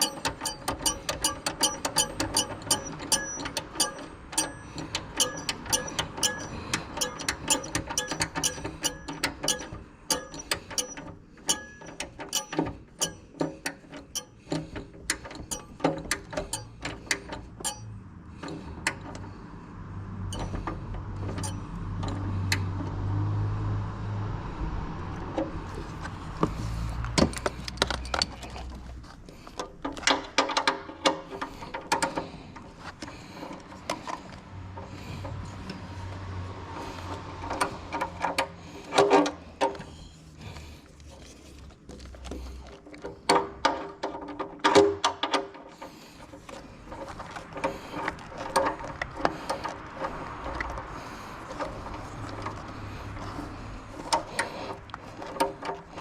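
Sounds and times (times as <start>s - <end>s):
socket wrench ratchet clicking: 0.0s - 17.9s
metal tools clinking: 0.0s - 18.6s, 20.3s - 21.7s.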